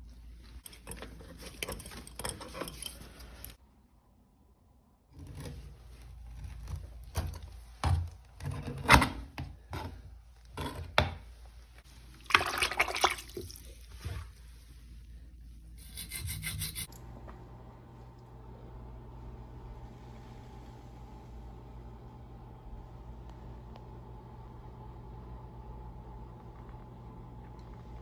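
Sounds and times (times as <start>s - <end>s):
scraping and rubbing: 15.7s - 16.9s.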